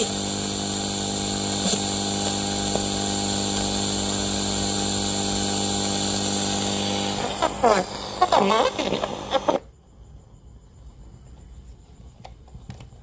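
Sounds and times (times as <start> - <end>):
small electric motor humming: 0.0 - 9.7.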